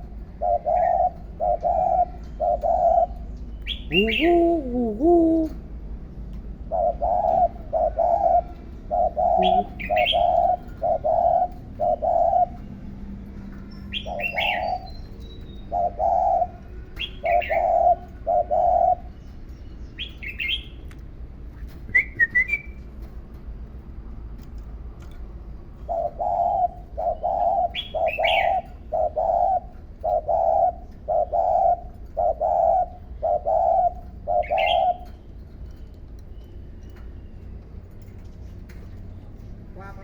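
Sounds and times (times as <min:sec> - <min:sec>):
bird cooing low notes: 0:00.4 - 0:05.7, 0:06.7 - 0:12.6, 0:25.9 - 0:35.1
bird chirping: 0:03.3 - 0:05.5, 0:09.2 - 0:10.4.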